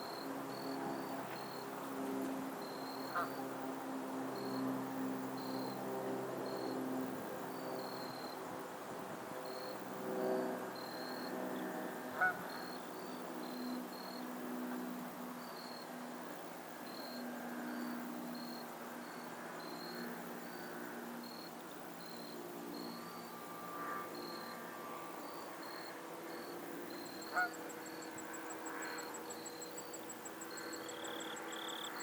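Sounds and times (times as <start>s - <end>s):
geese honking: 12.1s - 12.4s, 27.3s - 27.6s.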